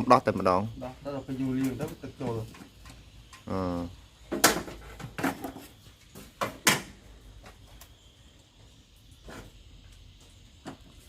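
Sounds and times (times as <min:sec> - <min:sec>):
knocks and clanks on air conditioner: 0:04.3 - 0:05.4.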